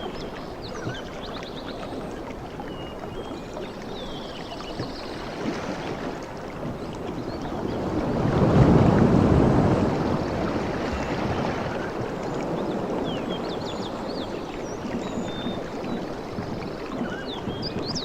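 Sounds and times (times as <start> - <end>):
waves breaking on beach: 4.8 - 18.0.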